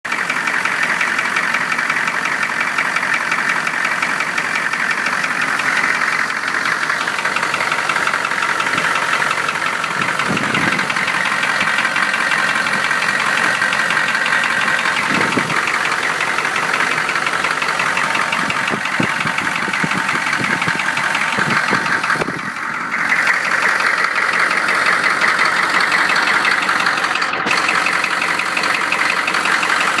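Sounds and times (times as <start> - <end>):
diesel engine knocking: 0.0 - 30.0.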